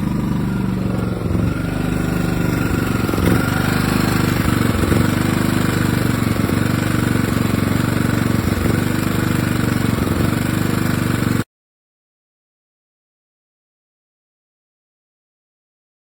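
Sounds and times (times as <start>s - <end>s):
petrol generator running: 0.0s - 11.4s.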